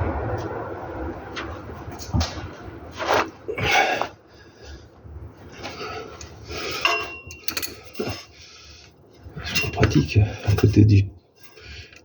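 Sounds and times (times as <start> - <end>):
thin squeak: 9.4 - 9.9.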